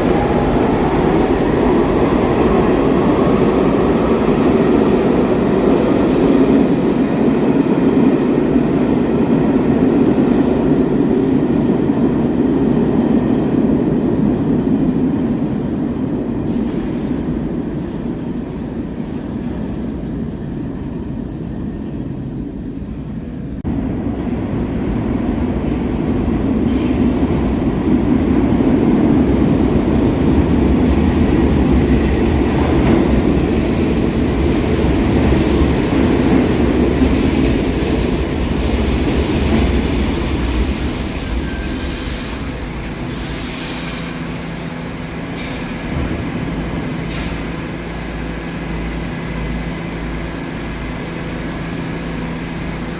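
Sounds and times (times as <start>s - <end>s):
subway train rumbling on rails: 0.0s - 52.9s
high wheel squeal: 40.7s - 44.3s.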